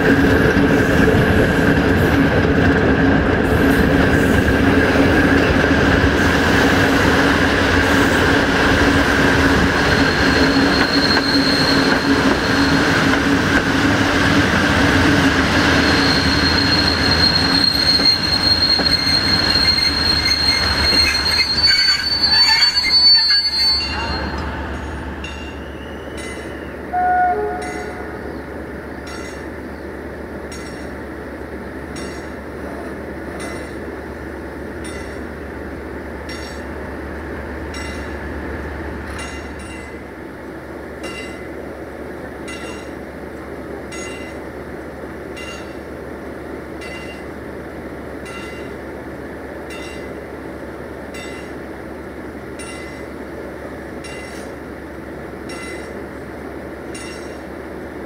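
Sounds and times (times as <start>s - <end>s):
moving train rolling: 0.0s - 58.0s
train horn blast: 26.9s - 28.3s.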